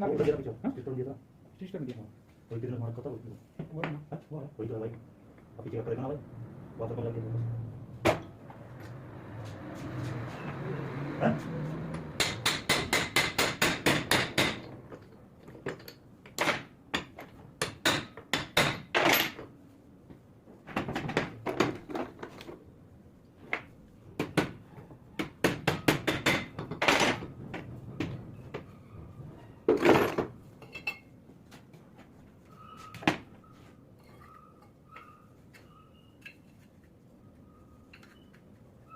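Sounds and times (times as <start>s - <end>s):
hammer tapping on metal: 11.9s - 14.7s, 25.2s - 26.8s.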